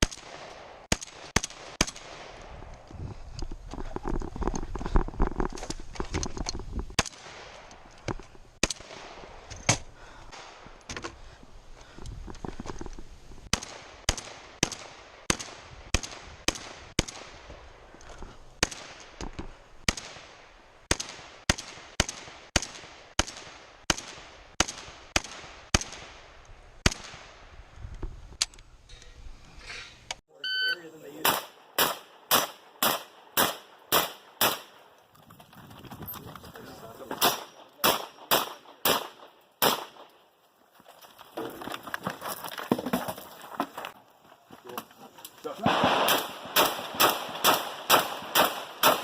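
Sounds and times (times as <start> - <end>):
shotgun shots: 0.0 - 2.4, 31.2 - 34.9, 37.1 - 40.2, 45.6 - 49.0.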